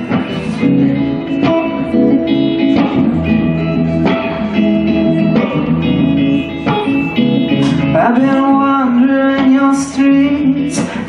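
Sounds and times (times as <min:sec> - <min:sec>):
guitar chords strumming: 0:00.0 - 0:11.0
live band music: 0:00.0 - 0:11.0.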